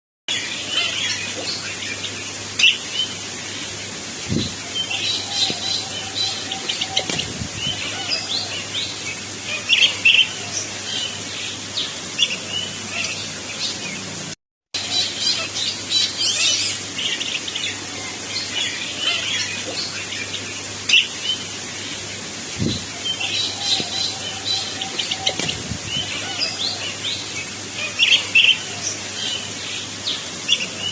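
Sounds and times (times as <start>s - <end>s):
bird singing chirps and trills: 22.6s - 30.9s.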